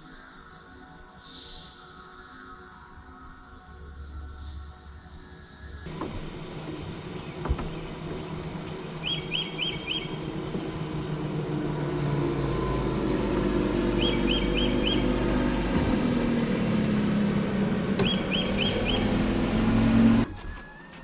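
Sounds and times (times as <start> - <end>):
bird chirping: 5.9 - 20.2
motor humming: 5.9 - 20.3.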